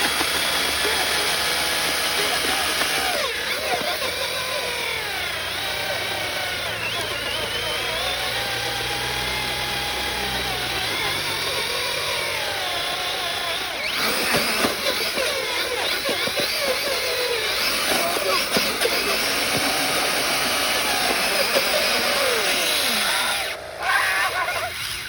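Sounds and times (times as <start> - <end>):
rapid crackling clicks: 0.0 - 4.5
electric motors whining under load: 0.0 - 25.0.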